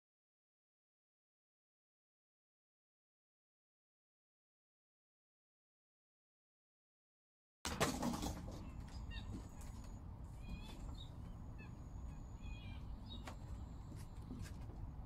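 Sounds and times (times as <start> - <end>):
low outdoor rumble: 7.7 - 15.0
small birds chirping: 8.6 - 15.0.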